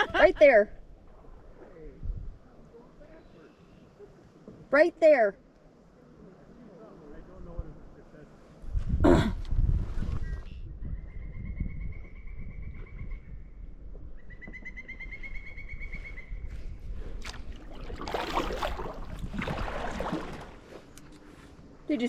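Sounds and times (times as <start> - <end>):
bird whistled call: 14.2 - 16.4
rustling and splashing: 17.1 - 21.7.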